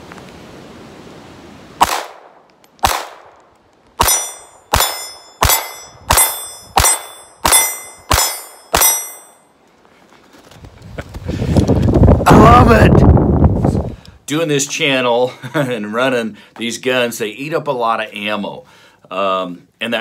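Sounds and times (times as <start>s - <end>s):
pistol shots: 1.8s - 3.4s, 4.0s - 9.2s
metallic ring of steel targets: 4.0s - 9.6s.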